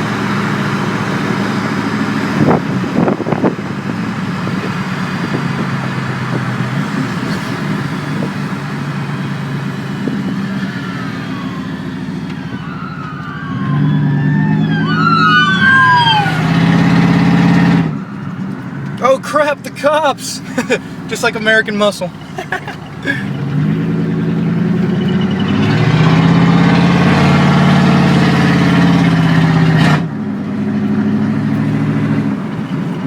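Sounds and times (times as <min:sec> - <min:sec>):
police siren wailing: 0:09.1 - 0:19.1.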